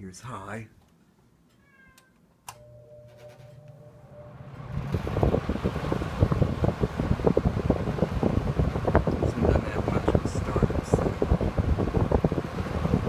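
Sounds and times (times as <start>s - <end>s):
fan switch click: 2.4s - 2.7s
fan motor hum: 2.4s - 13.0s
air buffeting microphone: 4.4s - 13.0s
rush of air from fan: 4.4s - 13.0s.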